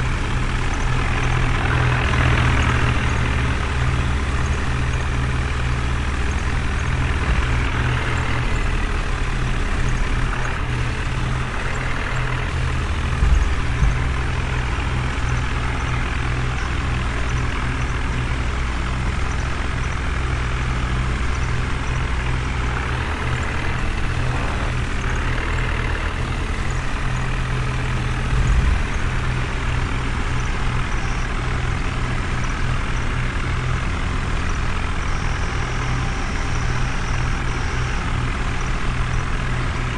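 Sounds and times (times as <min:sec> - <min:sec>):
truck engine rumbling: 0:00.0 - 0:39.9
low thumps: 0:07.0 - 0:08.3, 0:13.1 - 0:14.3.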